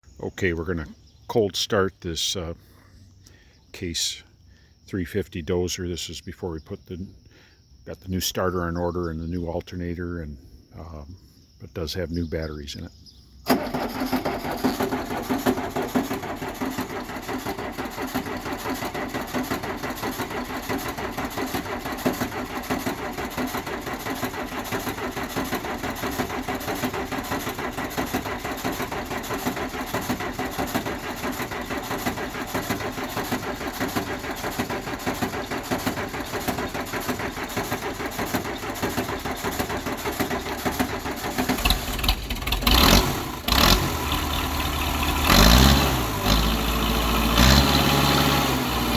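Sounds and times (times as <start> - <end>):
diesel engine rumbling: 0.0 - 48.9
starter motor cranking: 13.4 - 48.9.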